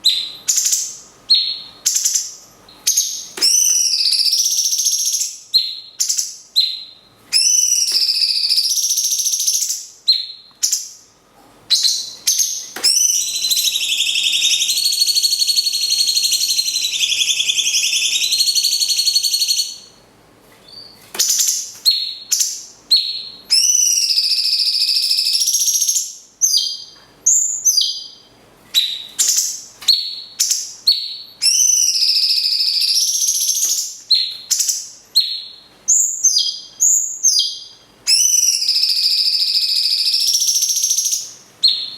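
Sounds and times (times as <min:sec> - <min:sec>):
cage birds chirping and whistling: 0:00.0 - 0:41.9
long bird trill: 0:12.9 - 0:19.8.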